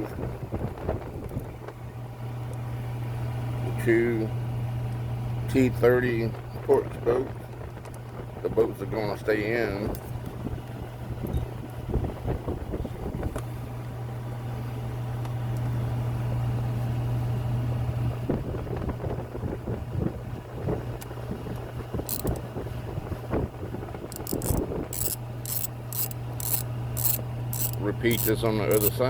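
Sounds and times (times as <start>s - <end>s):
steady low hum: 0.0s - 29.0s
sharp clicks of hand tool: 22.1s - 22.4s, 24.2s - 28.9s.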